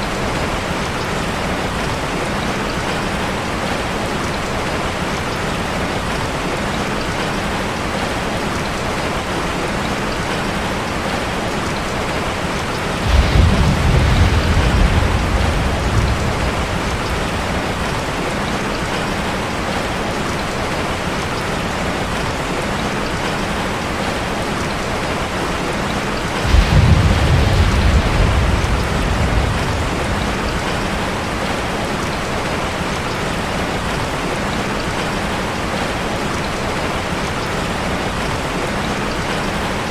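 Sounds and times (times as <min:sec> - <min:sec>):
rain drumming on metal roof: 0:00.0 - 0:39.9
thunder rumbling: 0:12.5 - 0:20.0, 0:24.9 - 0:33.2.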